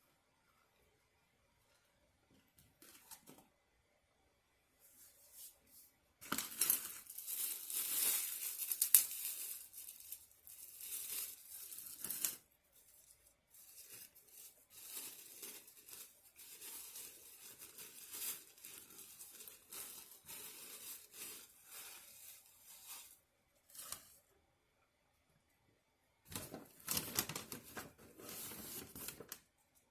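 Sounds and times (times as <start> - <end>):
packaging crinkling: 6.2 - 12.4, 13.7 - 23.1, 26.3 - 29.4.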